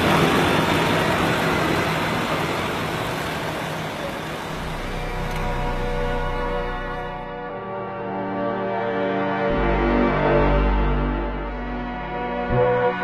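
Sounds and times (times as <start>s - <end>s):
airliner cabin roar: 0.0s - 7.6s
held musical tones: 0.0s - 7.7s.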